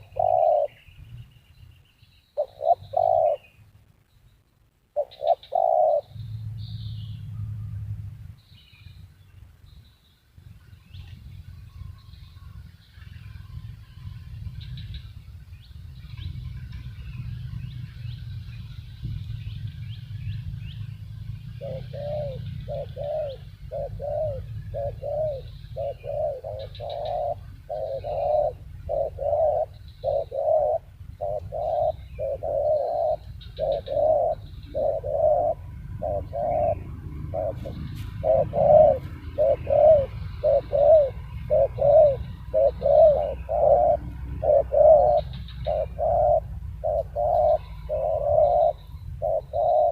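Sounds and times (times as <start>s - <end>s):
dove cooing: 0.0s - 0.9s, 2.4s - 3.6s, 5.0s - 6.4s, 20.8s - 49.9s
small birds chirping: 0.0s - 49.9s.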